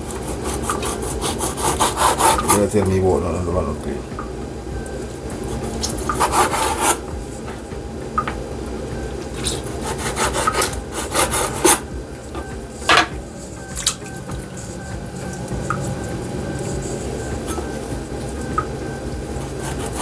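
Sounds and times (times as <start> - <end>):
hands rubbing and scraping meat: 0.0 - 3.0, 9.3 - 11.8, 19.3 - 20.0.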